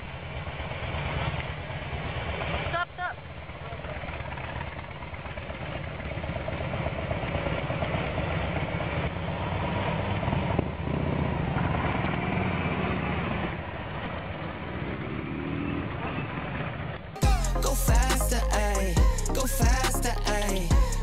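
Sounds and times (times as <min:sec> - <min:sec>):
engine idling: 0:00.0 - 0:08.8, 0:17.2 - 0:21.0.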